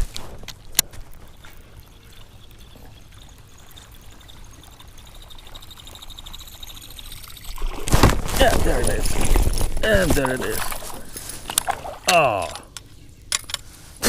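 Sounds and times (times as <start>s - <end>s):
lure blade churning water: 0.8s - 12.8s
rhythmic squeak: 1.2s - 7.6s.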